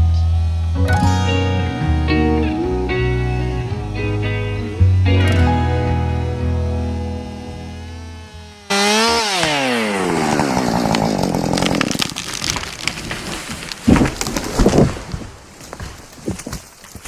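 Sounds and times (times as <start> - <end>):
chainsaw running: 1.3 - 13.7
tree cracking and crashing: 8.7 - 17.0
heavy thuds of tree hitting ground: 8.9 - 16.6.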